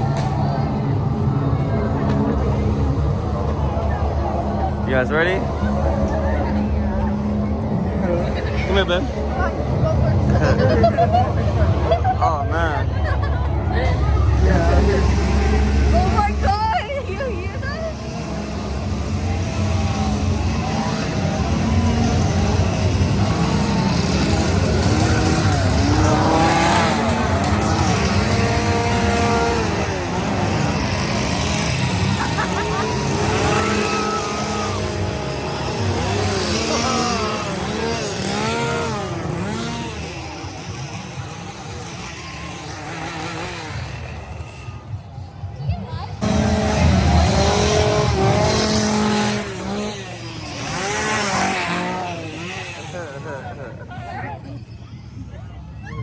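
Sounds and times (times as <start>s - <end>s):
engines revving: 0.0s - 55.4s.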